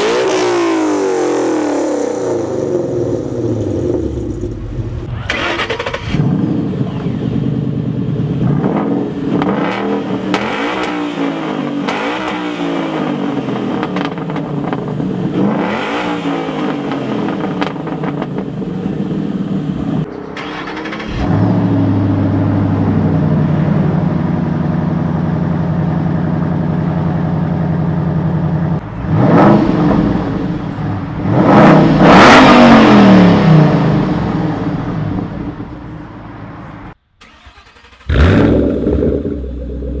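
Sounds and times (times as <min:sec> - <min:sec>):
car engine revving: 0:00.0 - 0:40.0
car engine idling: 0:02.4 - 0:10.4, 0:16.6 - 0:40.0.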